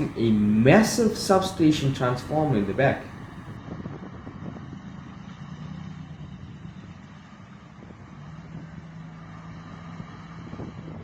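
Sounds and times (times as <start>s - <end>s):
traffic noise: 0.0s - 3.6s
truck engine humming: 0.0s - 3.6s.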